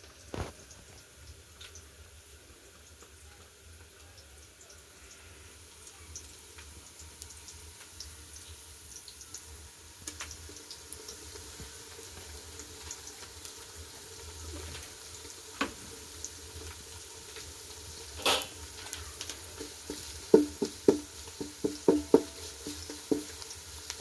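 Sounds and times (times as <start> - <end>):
small ticks and crackles: 0.0 - 18.0, 18.6 - 24.0.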